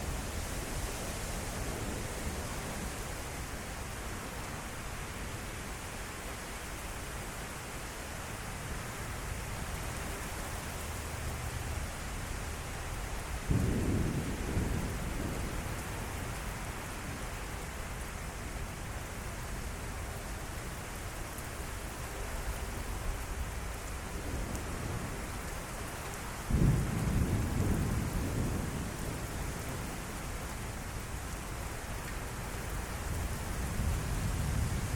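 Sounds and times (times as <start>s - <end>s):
heavy rain falling: 0.0s - 34.9s
thunder rumble: 13.4s - 16.0s, 26.4s - 30.0s.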